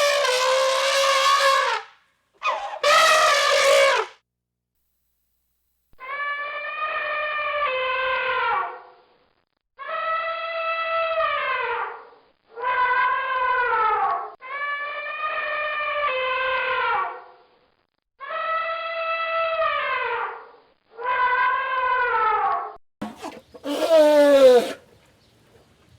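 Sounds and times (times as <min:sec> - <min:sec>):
elephant trumpeting: 0:00.0 - 0:04.2, 0:23.0 - 0:24.9.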